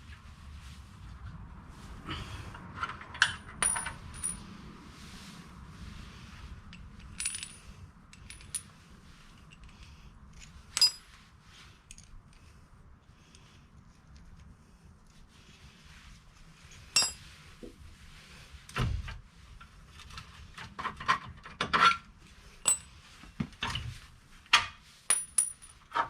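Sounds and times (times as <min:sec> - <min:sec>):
metal tools clinking: 0:03.2 - 0:04.4, 0:07.0 - 0:08.7, 0:10.4 - 0:11.1, 0:17.0 - 0:17.2, 0:22.6 - 0:23.0.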